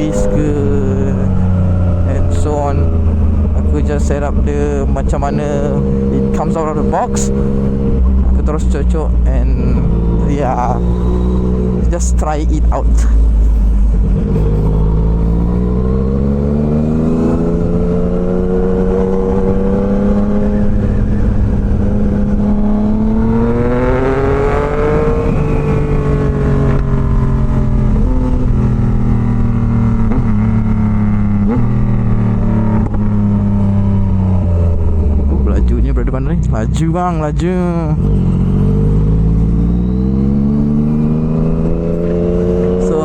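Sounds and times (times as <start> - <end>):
motorcycle engine accelerating: 0.0 - 43.0
wind rumble on microphone: 12.7 - 36.7.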